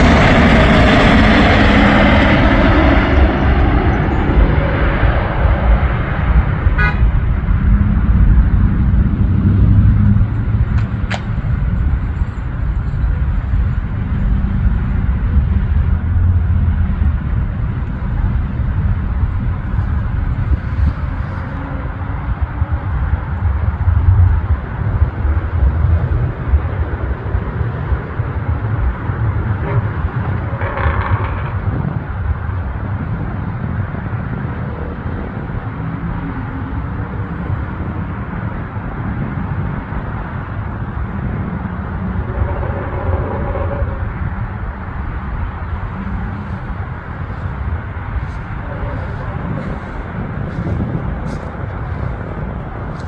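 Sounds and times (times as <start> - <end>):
aircraft engine rumble: 0.0 - 53.0.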